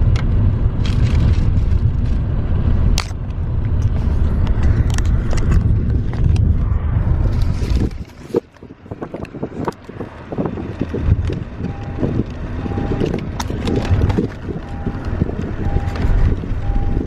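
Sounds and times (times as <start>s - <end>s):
vehicle rumble: 0.0s - 17.0s
wind noise on microphone: 0.0s - 17.0s
short beep: 11.7s - 13.1s, 15.6s - 16.0s, 16.6s - 17.0s.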